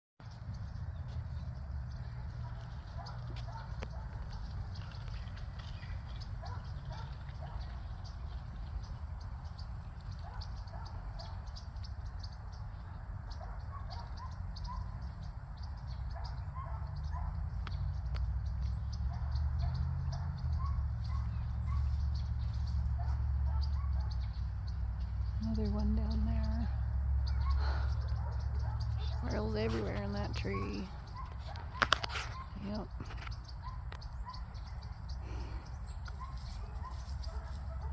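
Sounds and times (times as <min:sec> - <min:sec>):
wind rumble on microphone: 0:00.2 - 0:37.9
quick clicks from animals: 0:30.9 - 0:34.4.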